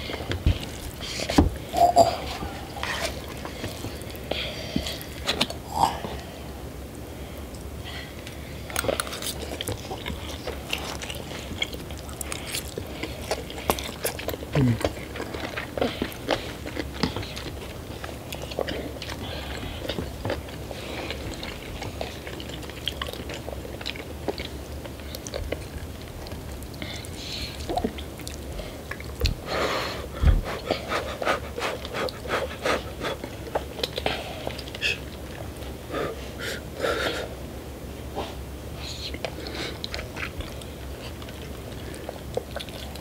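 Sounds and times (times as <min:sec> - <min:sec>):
people chewing and biting: 0:00.0 - 0:06.4, 0:07.4 - 0:37.4, 0:38.2 - 0:43.0.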